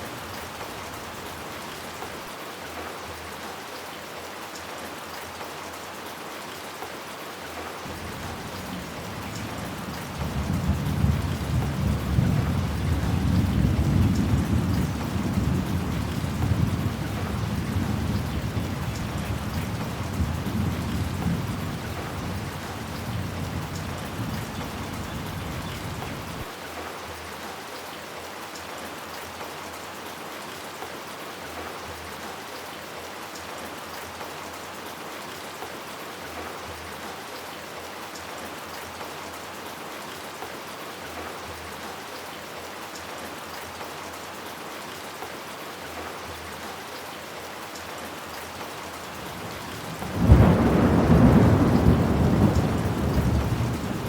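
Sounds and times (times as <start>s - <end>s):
heavy rain on hard surfaces: 0.0s - 54.0s
low rumble of thunder: 7.9s - 26.5s, 49.2s - 54.0s.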